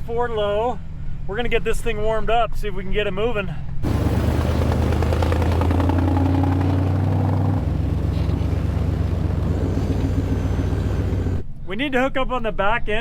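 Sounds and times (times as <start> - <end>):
truck engine running: 3.8 - 11.4.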